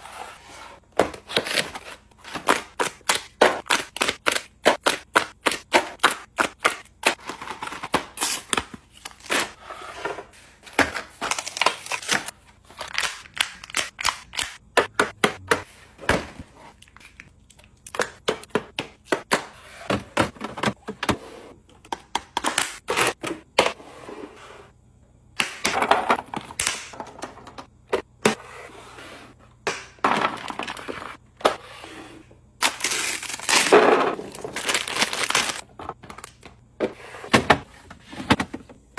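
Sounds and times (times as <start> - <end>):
food packaging handled: 32.6 - 36.6.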